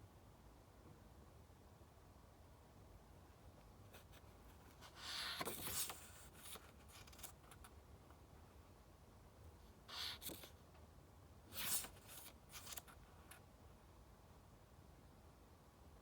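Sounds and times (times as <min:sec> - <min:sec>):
book page turning: 0:04.9 - 0:07.7, 0:11.5 - 0:13.4.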